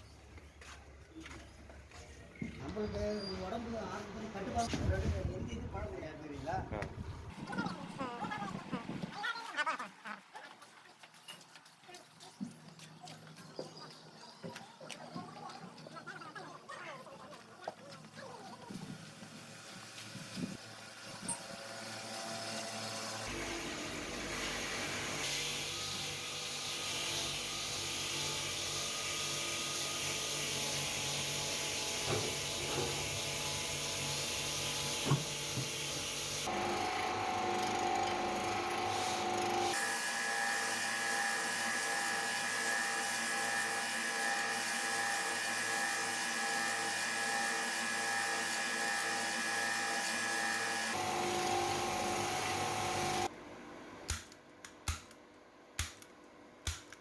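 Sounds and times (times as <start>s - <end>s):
power tool whirring: 19.7s - 53.3s.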